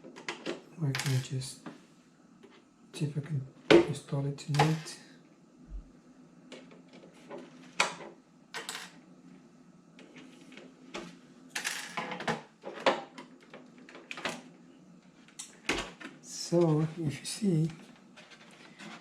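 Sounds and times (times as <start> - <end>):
small objects clattering on table: 0.2 - 1.3, 7.2 - 9.0, 11.0 - 14.3.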